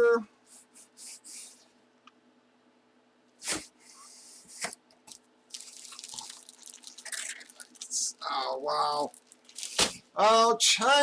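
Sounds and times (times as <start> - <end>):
plastic rustling and crinkling: 4.6 - 10.1.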